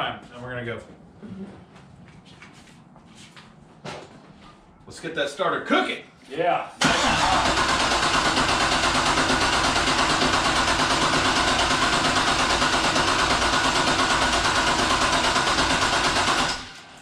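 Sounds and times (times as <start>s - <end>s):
car engine cranking on starter: 6.8s - 16.9s.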